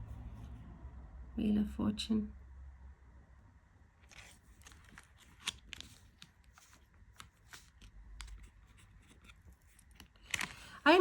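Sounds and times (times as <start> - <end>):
cards being flipped through: 4.0 - 11.0.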